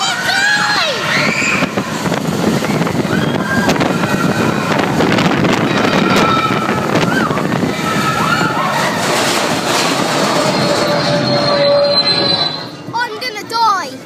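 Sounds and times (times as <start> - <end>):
riders shouting and screaming: 0.0 - 9.6
wind on microphone: 0.0 - 11.2
roller coaster rumbling and rattling: 0.0 - 14.0.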